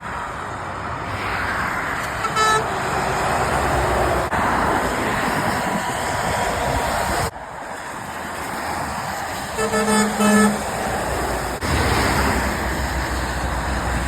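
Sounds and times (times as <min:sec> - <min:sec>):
tyres hissing on wet road: 0:00.1 - 0:14.0
car horn toot: 0:02.2 - 0:02.7, 0:09.6 - 0:10.6.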